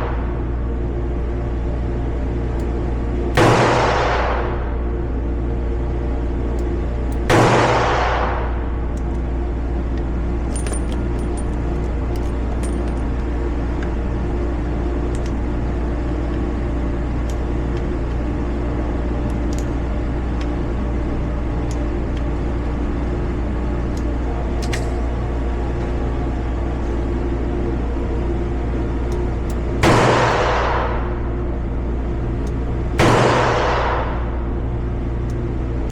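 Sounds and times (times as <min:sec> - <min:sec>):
mechanical hum: 0:00.0 - 0:35.9
revolver gunshot: 0:03.4 - 0:04.6, 0:07.3 - 0:08.6, 0:29.8 - 0:31.0, 0:33.0 - 0:34.2.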